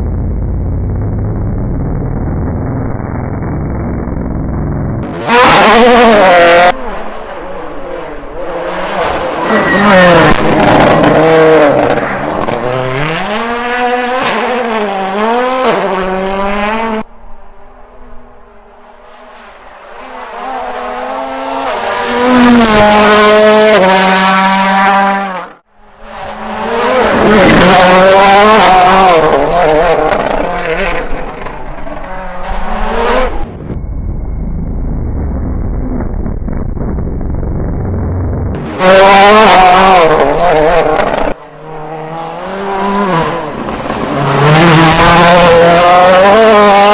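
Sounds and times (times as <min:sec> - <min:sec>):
rally car engines revving: 0:01.1 - 0:33.8, 0:37.6 - 0:46.9
muffled low rumble: 0:33.5 - 0:38.6.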